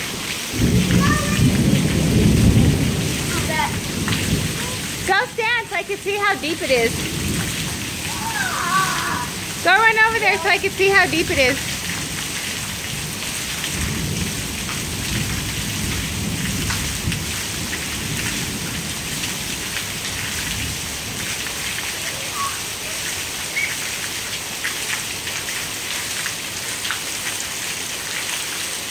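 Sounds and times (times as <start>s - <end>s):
heavy rain pouring: 0.0s - 28.9s
low rumble of thunder: 0.5s - 5.1s, 6.6s - 9.7s, 10.6s - 21.3s.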